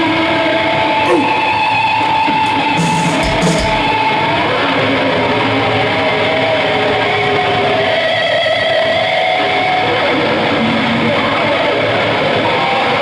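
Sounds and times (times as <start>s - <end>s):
drum and cymbal hits: 2.5s - 4.2s
distorted electric guitar: 2.5s - 4.3s.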